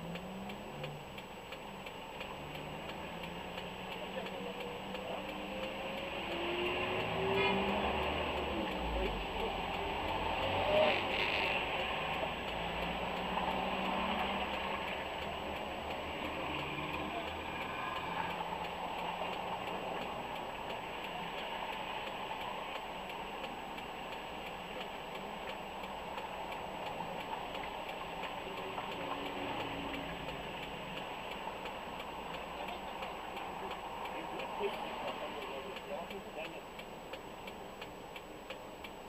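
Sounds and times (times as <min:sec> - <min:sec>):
car engine idling: 0:00.0 - 0:10.5
turn indicator ticking: 0:00.0 - 0:39.0.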